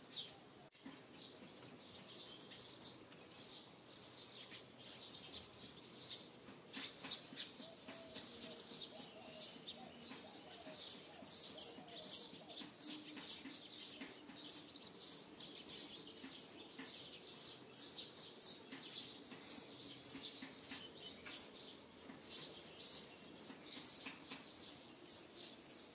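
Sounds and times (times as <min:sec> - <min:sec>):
birds chirping: 0:00.0 - 0:25.9.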